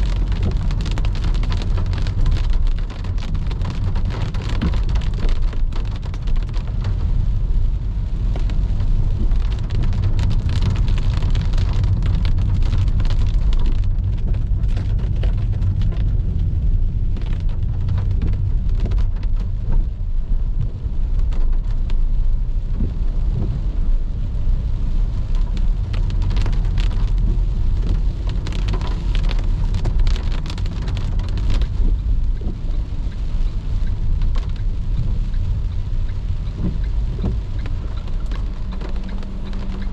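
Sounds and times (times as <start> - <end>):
car rumble on wet road: 0.0 - 39.9
raindrops ticking on a car: 0.0 - 39.9.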